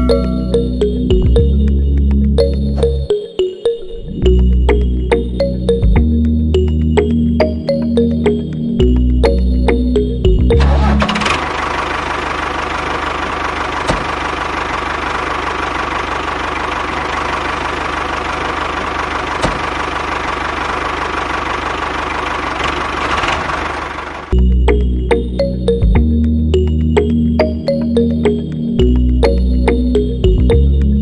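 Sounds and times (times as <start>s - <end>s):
small motor rattling: 10.6s - 24.4s.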